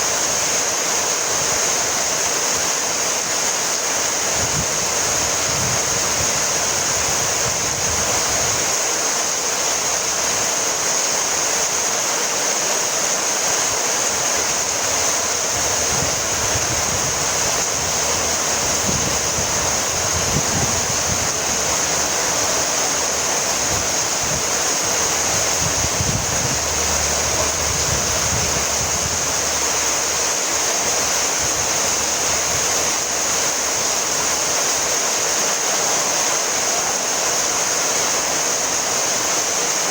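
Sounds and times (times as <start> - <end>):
heavy rain hiss: 0.0 - 39.9
low rumbles: 14.6 - 33.3.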